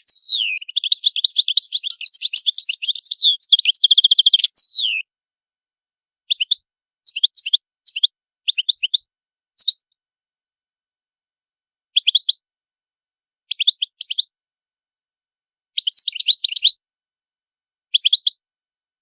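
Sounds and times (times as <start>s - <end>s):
goldfinch singing: 0.0s - 5.0s, 6.3s - 9.0s, 9.6s - 9.8s, 13.5s - 14.3s, 15.8s - 16.8s.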